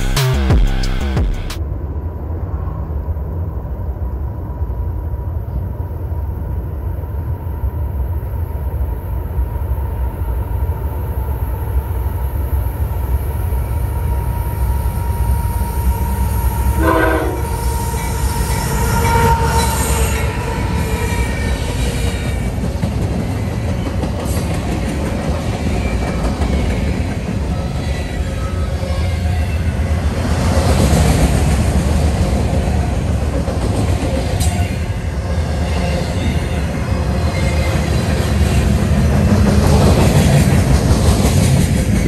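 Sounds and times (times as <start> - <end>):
train horn blast: 16.6 - 21.4.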